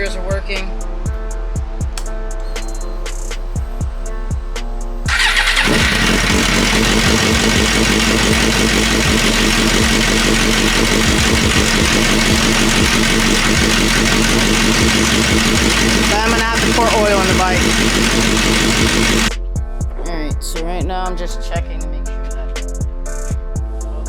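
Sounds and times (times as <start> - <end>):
music with a beat: 0.0 - 5.1, 19.3 - 24.0
motorcycle engine starting and idling: 5.1 - 19.3.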